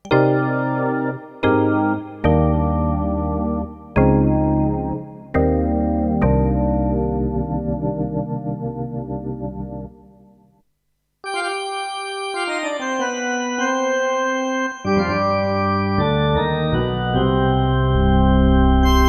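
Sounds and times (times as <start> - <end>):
synthesizer chords: 14.9 - 19.0.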